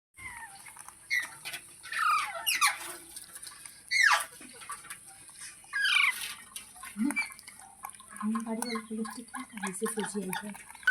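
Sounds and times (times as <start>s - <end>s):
parrot screeching: 0.2s - 3.0s, 3.9s - 4.4s, 5.7s - 6.4s.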